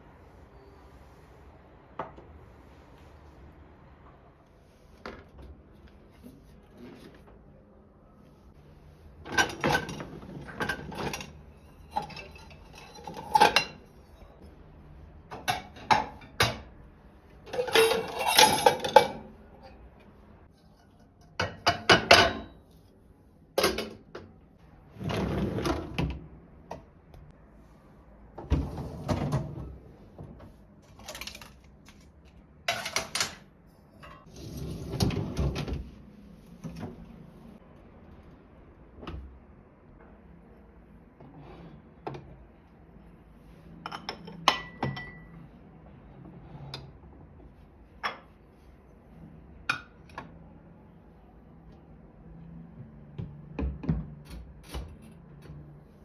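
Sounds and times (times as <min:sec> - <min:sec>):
dishes clattering: 0:09.3 - 0:14.0, 0:17.5 - 0:19.3, 0:20.8 - 0:22.6, 0:32.7 - 0:33.4.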